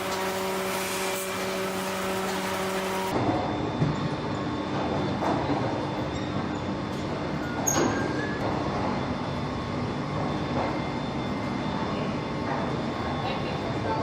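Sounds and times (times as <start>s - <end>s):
mechanical hum with whine: 0.0s - 14.0s
metallic clank and squeal: 6.1s - 6.7s, 7.4s - 8.4s.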